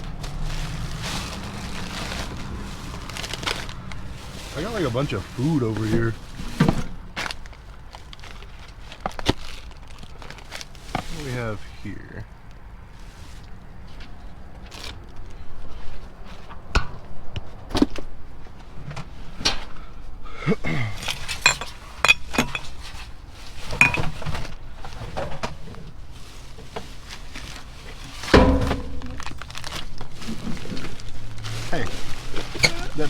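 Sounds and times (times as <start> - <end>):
hard items clinking and rattling: 0.0 - 11.2, 20.7 - 25.7, 27.2 - 33.0
heavy knock: 28.4 - 29.4.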